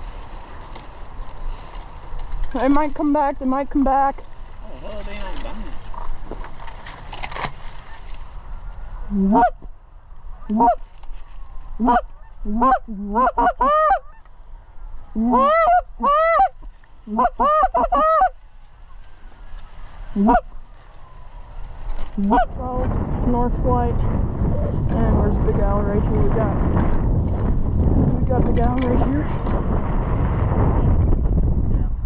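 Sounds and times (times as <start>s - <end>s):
geese honking: 7.8s - 9.7s, 10.3s - 10.8s, 11.7s - 22.6s.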